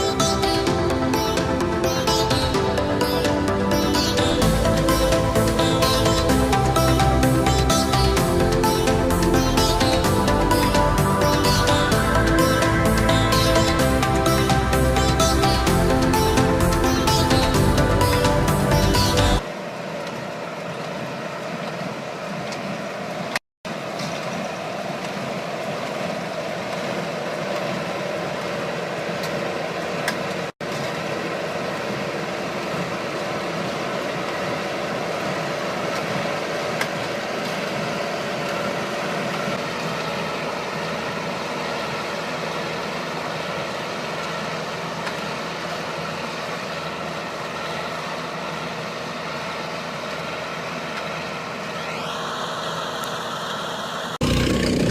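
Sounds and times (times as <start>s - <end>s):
machine engine running: 0.0s - 19.4s, 30.6s - 54.9s.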